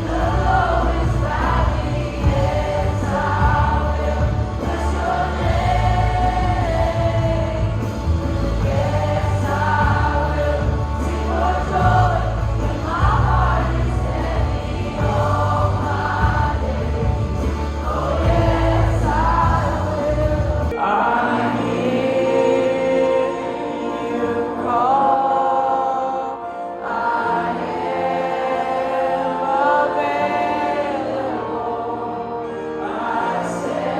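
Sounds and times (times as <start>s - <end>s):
heavy bass accompaniment: 0.0s - 20.8s
group of voices singing held notes: 0.0s - 33.9s.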